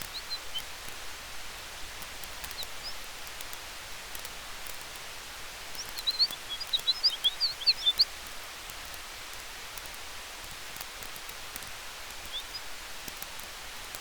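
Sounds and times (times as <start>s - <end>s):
small bird chirping: 0.0s - 0.8s, 2.2s - 3.4s, 5.6s - 8.4s, 11.6s - 12.8s
campfire hissing and crackling: 0.0s - 14.0s
wind through trees: 0.0s - 14.0s.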